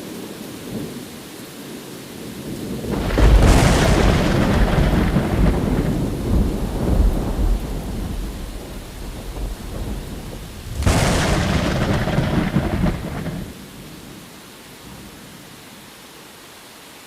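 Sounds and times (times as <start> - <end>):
steady rain: 0.0 - 17.0
sharp thunder crack: 2.8 - 13.6
thunder rolling: 2.8 - 13.6.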